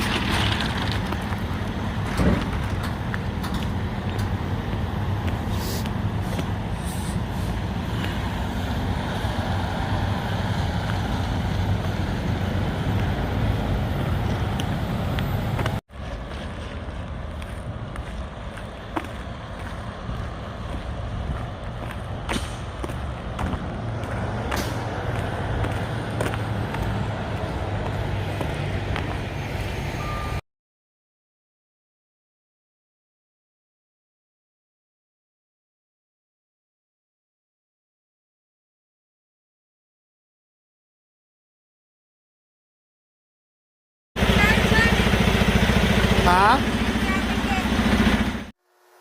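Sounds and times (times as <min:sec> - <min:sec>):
road noise: 0:00.0 - 0:30.4, 0:44.2 - 0:49.0
truck engine drone: 0:00.0 - 0:30.4, 0:44.2 - 0:49.0.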